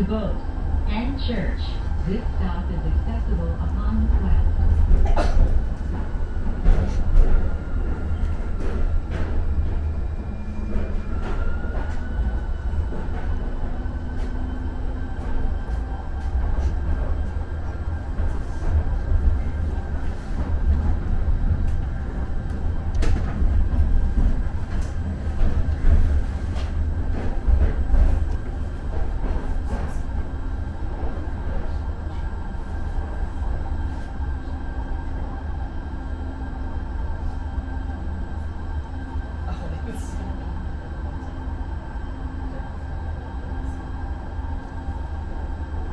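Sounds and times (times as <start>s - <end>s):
light rail car rumbling on rails: 0.0s - 45.9s.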